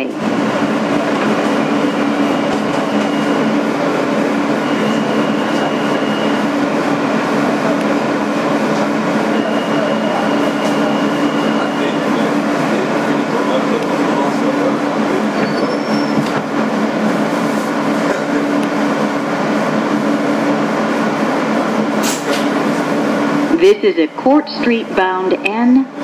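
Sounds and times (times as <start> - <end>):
subway car rumble: 0.0 - 26.0
low two-tone hum: 16.3 - 26.0.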